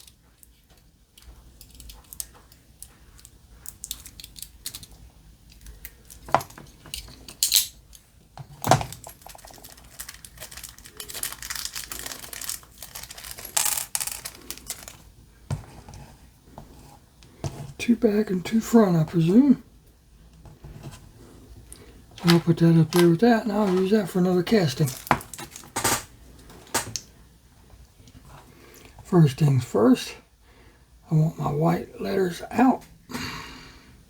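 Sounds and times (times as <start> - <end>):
small parts clicking and clinking: 0.0 - 15.0, 24.8 - 26.1
packaging rustling: 8.4 - 15.1, 22.1 - 27.0.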